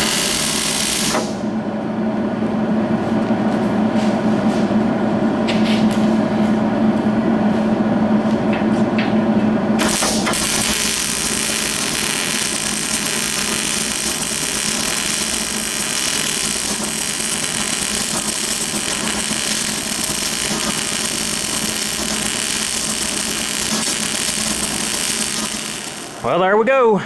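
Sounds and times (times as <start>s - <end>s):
arc welding crackling sizzle: 0.0s - 1.4s, 9.8s - 26.5s.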